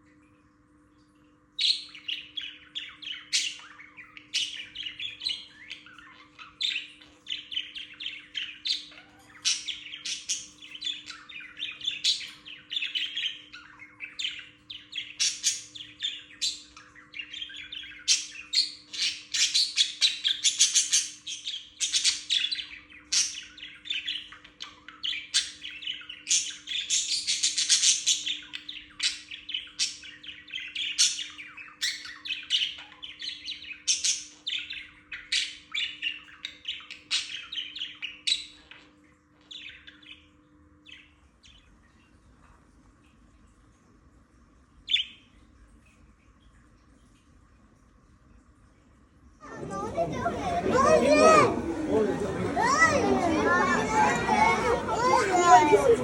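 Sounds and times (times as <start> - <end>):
budgerigars chirping and warbling: 1.6 - 41.8, 44.9 - 45.3.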